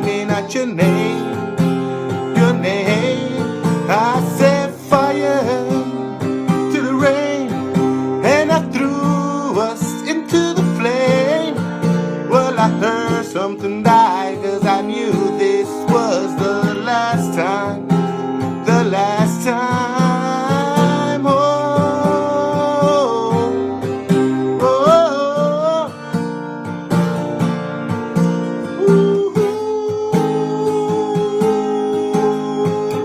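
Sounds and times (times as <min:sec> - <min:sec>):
acoustic guitar strumming: 0:00.0 - 0:33.0
person singing long sliding notes: 0:28.7 - 0:33.0.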